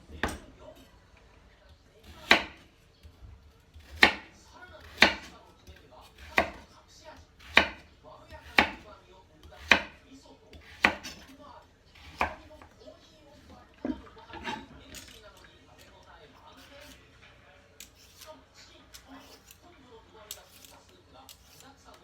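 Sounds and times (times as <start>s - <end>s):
knife chopping on cutting board: 0.1s - 0.5s, 2.0s - 2.7s, 3.7s - 6.7s, 7.4s - 11.3s, 12.0s - 12.7s.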